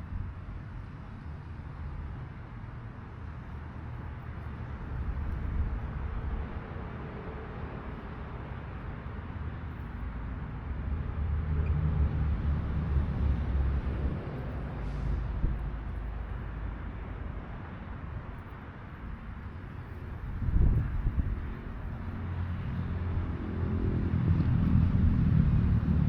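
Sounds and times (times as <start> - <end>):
train rumbling past: 10.9 - 17.8, 19.4 - 26.0.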